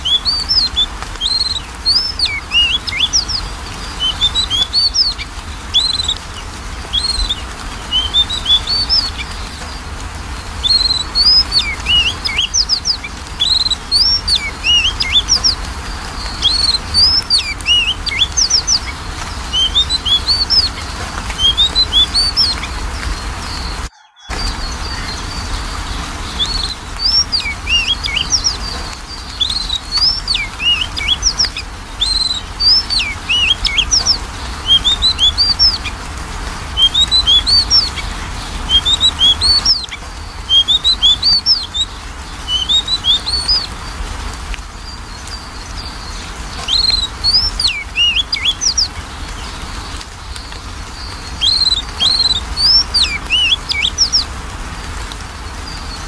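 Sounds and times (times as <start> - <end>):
bird singing whistled phrases: 0.0 - 9.8, 10.4 - 15.6, 16.2 - 35.9, 36.8 - 38.1, 38.7 - 43.9, 44.8 - 49.0, 50.3 - 54.3.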